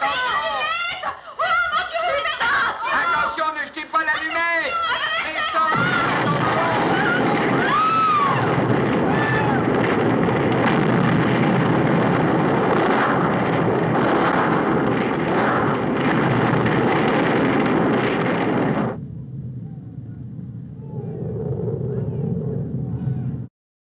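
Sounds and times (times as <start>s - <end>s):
explosion and fire roar: 5.7s - 23.5s.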